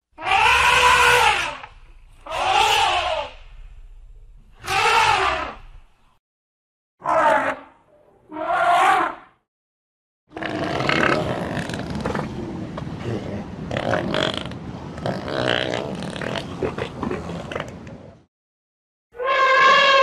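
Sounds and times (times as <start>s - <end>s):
elephants rumbling and grunting: 10.3s - 18.2s
elephant trumpet call: 19.2s - 20.0s.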